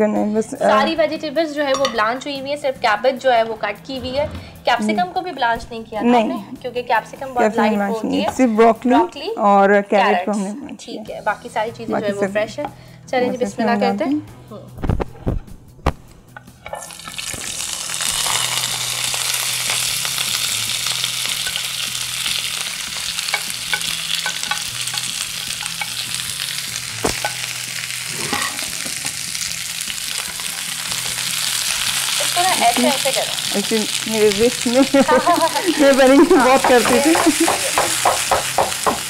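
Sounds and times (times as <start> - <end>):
vegetables sizzling in oil: 16.5 - 39.0.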